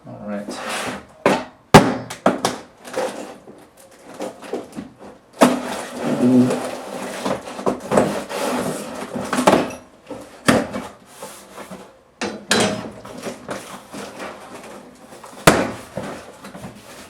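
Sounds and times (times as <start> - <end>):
sharp knocks: 1.3 - 2.6
cardboard scraping and rustling: 2.8 - 11.9, 12.9 - 17.0.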